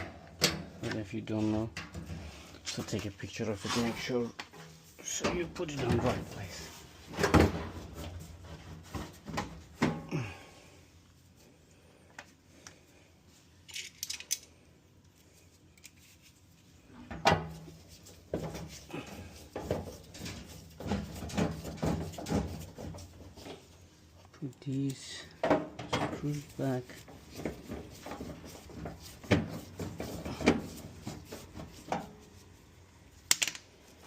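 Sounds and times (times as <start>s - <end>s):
metal parts knocking and clinking: 13.7s - 14.5s, 33.3s - 33.7s.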